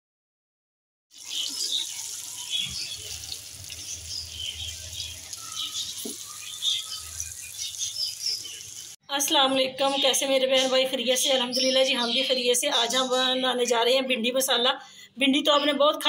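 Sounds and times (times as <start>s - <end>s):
okra sizzling in hot oil: 1.1s - 9.0s.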